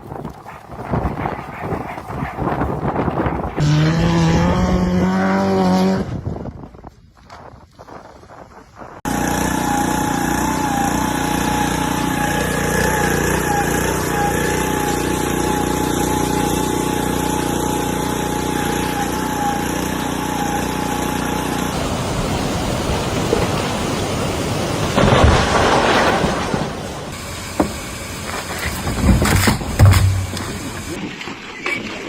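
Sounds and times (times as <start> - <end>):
engine running: 3.6 - 6.1, 9.0 - 31.0
wavering whine: 9.1 - 21.7.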